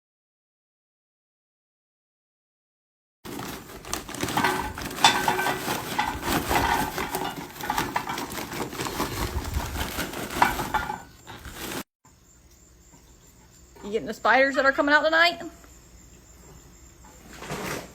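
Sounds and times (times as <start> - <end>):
small hard objects clinking: 3.3 - 11.9.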